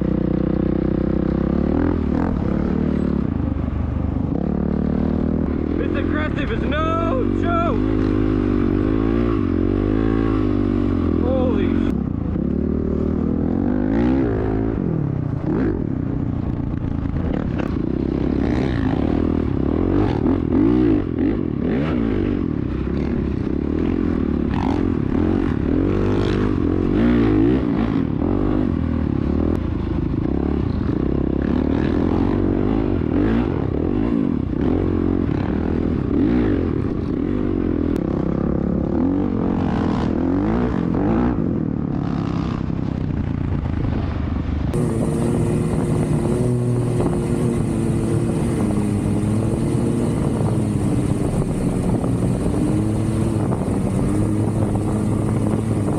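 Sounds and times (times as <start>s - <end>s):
dirt bike engine revving: 4.3s - 15.8s, 17.3s - 29.3s, 44.7s - 55.9s.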